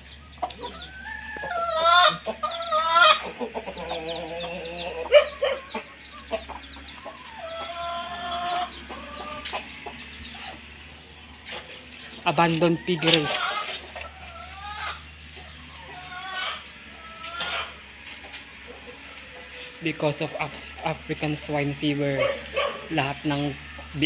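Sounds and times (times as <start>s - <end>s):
chickens clucking and calling: 0.0s - 24.0s
rooster crowing: 0.6s - 3.2s.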